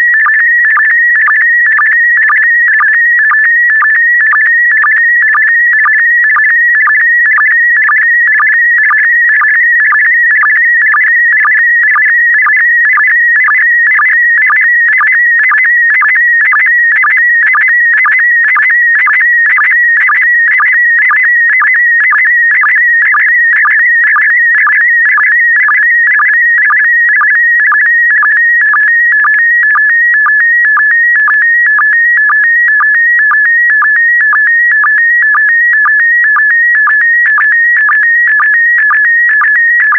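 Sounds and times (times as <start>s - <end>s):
short sync beeps: 31.7s - 39.9s.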